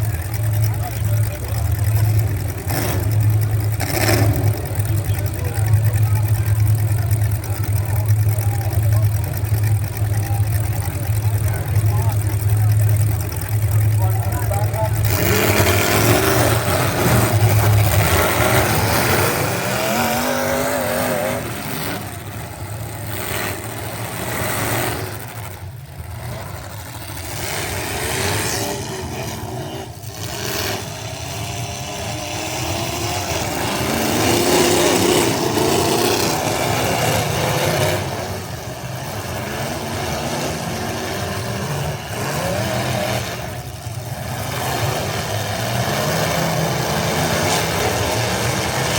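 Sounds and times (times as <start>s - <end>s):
truck engine revving: 0.0s - 48.9s.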